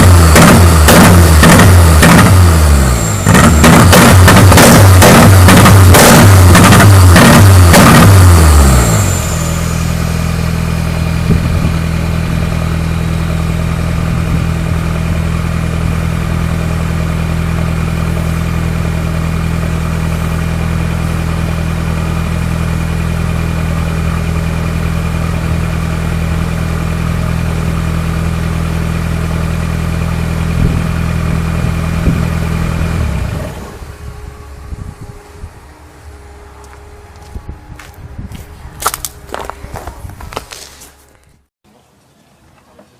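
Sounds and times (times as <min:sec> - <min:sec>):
car engine idling: 0:00.0 - 0:41.1.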